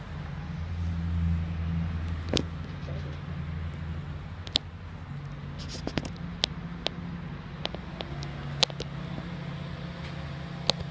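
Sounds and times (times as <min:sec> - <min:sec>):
sharp clicks: 0:07.6 - 0:08.9.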